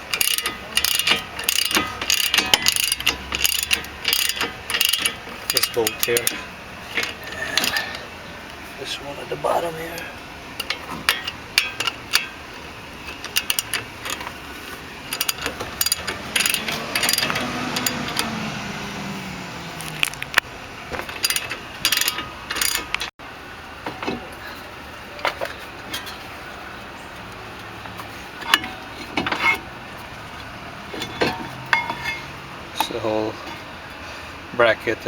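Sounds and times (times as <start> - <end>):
ratchet wrench clicking: 0.0 - 8.0, 10.0 - 12.4, 13.0 - 14.4, 15.1 - 18.5, 19.8 - 23.1
metallic clinks: 15.1 - 18.4.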